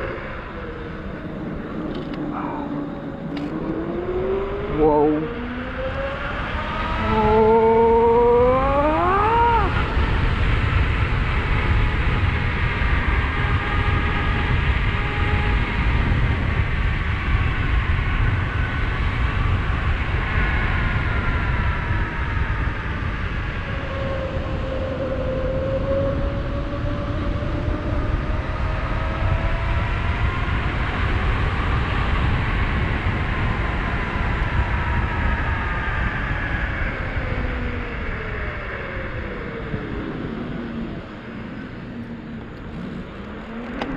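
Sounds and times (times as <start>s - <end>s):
wind on microphone: 0.0s - 43.9s
electric motor whining: 6.7s - 10.0s, 40.2s - 43.9s.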